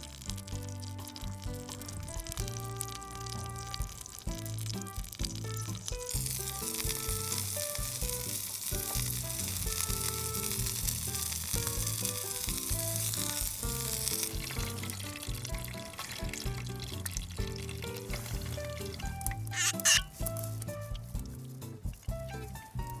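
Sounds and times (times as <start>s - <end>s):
background music: 0.0s - 23.0s
food sizzling: 0.0s - 23.0s.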